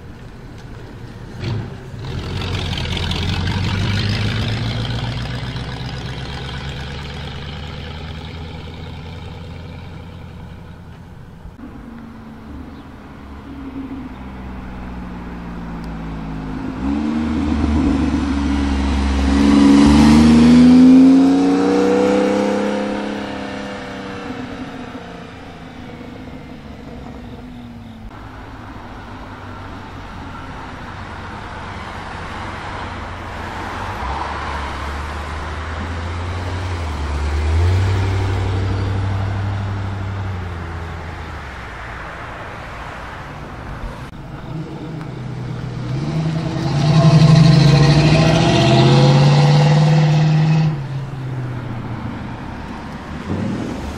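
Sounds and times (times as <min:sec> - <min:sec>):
car accelerating hard: 0:01.4 - 0:10.6, 0:12.3 - 0:27.5, 0:43.9 - 0:53.9
car engine driving past: 0:11.6 - 0:28.0, 0:32.5 - 0:53.9.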